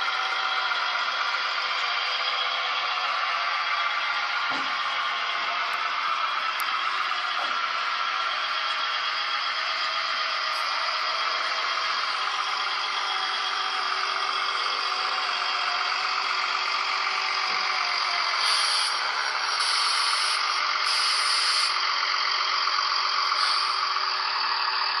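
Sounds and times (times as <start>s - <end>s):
diesel engine sound from tiny speaker: 0.0s - 25.0s
short high hisses: 18.4s - 21.8s, 23.4s - 23.8s.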